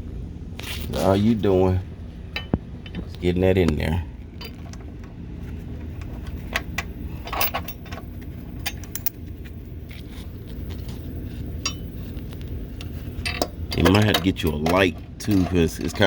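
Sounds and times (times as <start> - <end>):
metallic clinks of bolts and wrench: 4.4 - 4.8, 6.0 - 9.3, 11.6 - 12.1, 13.2 - 16.0.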